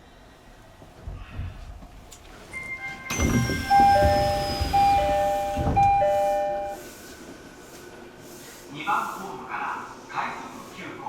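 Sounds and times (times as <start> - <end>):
train rumbling: 0.0 - 8.2.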